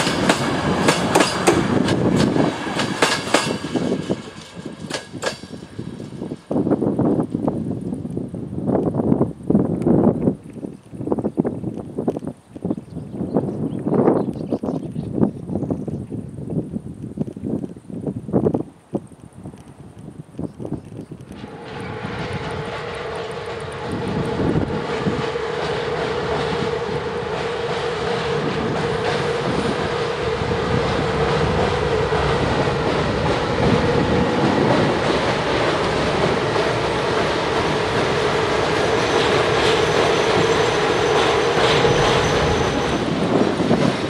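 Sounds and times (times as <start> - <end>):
wheels clacking over rail joints: 0.0 - 6.6, 21.2 - 44.0
rumble of freight wagons: 0.0 - 15.0, 19.8 - 44.0
droning hum: 21.3 - 43.3.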